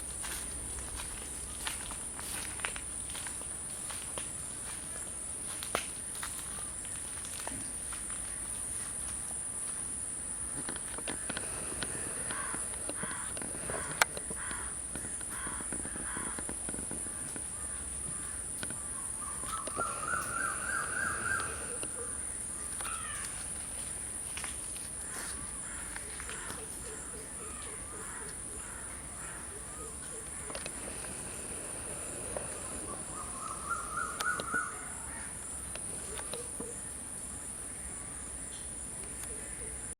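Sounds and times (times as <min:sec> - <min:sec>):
insects droning: 0:00.0 - 0:39.9
birds calling: 0:10.3 - 0:24.2, 0:24.9 - 0:39.9.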